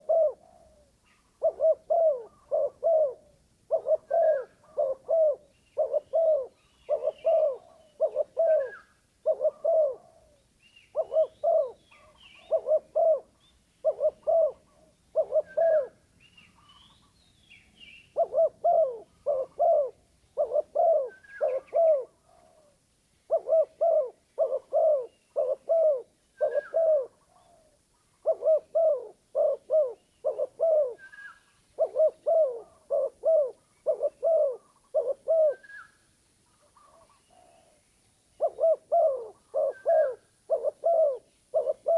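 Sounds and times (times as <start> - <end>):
dove cooing: 0.0 - 17.1, 18.1 - 36.0, 36.6 - 37.8, 38.4 - 41.9
small birds chirping: 13.3 - 18.3.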